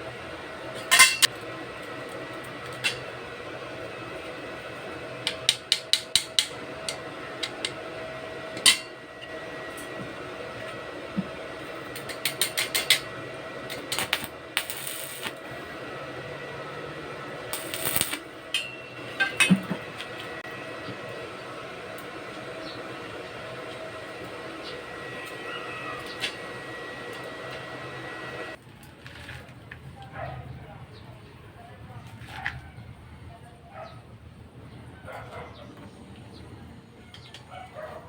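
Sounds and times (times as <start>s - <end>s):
steady hum: 0.0s - 28.6s.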